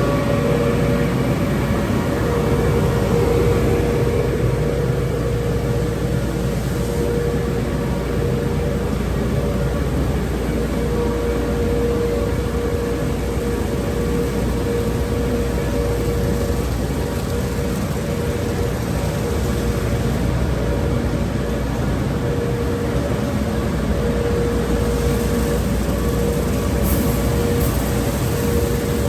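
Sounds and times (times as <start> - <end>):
car wash equipment rushing: 0.0 - 29.0
mid-pitched machine whine: 0.0 - 29.0.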